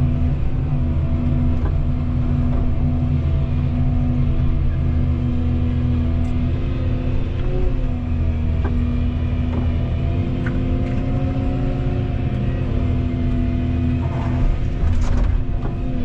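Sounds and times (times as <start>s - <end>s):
excavator diesel engine: 0.0s - 16.0s
clatter of impacts: 14.0s - 15.9s.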